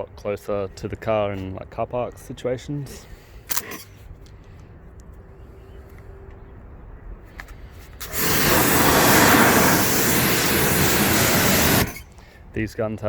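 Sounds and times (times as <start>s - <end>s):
pressure washer water jet hiss: 8.0s - 12.1s.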